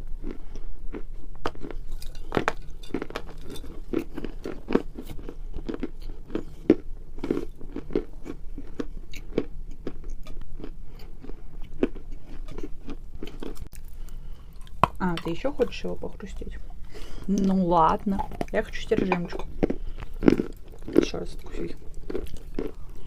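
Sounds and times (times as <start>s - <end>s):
chalk crunching being chewed: 0.2s - 14.8s, 19.5s - 23.0s.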